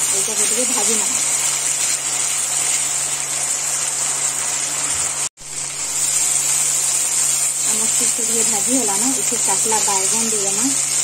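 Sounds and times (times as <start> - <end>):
spice paste sizzling in oil: 0.0 - 11.0.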